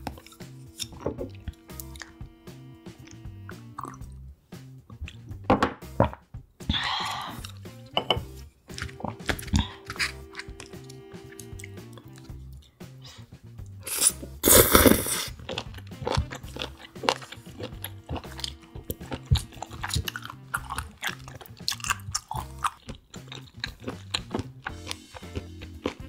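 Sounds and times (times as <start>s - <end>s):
soft background music: 0.0s - 26.0s
wet mouth clicks: 3.1s - 4.1s
chewing and crunching seafood: 3.8s - 4.1s, 8.7s - 12.8s, 13.9s - 26.0s.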